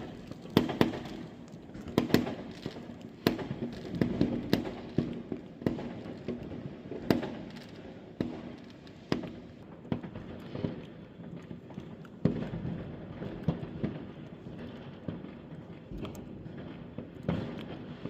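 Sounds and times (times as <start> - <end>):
firework bangs with echo: 0.0 - 10.9
firecrackers crackling and popping: 0.0 - 18.0.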